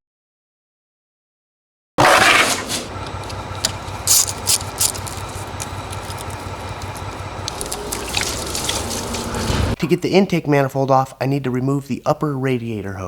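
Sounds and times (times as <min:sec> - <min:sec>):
scrapes: 0:02.0 - 0:09.8
steady low hum: 0:02.0 - 0:10.4.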